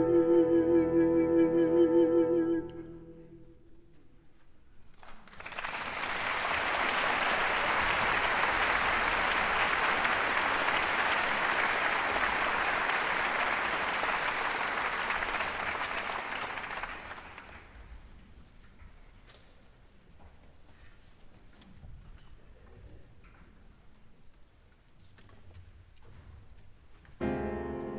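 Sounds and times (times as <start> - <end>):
audience applauding: 5.0 - 17.9.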